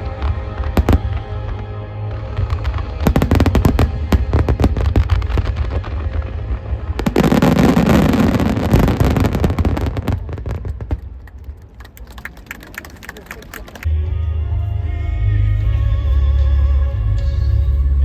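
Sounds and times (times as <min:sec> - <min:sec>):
music: 0:00.0 - 0:10.8, 0:13.8 - 0:18.0
fireworks bursting and crackling: 0:00.0 - 0:13.9.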